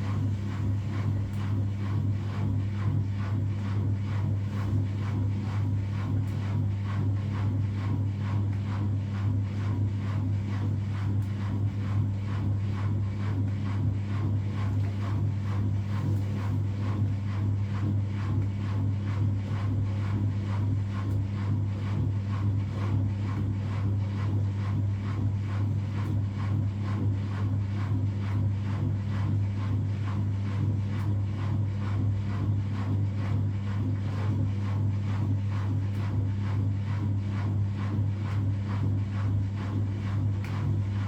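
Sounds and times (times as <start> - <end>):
washing machine running: 0.0 - 41.0.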